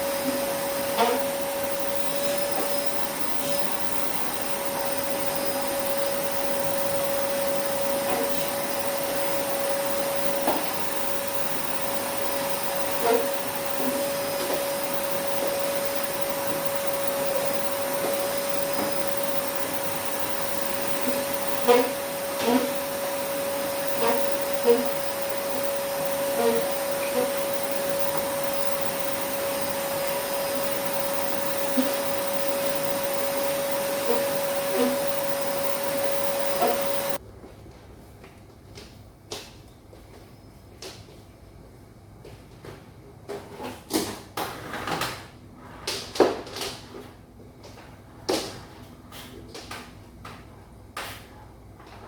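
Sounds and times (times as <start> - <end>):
vacuum cleaner whining: 0.0 - 37.2.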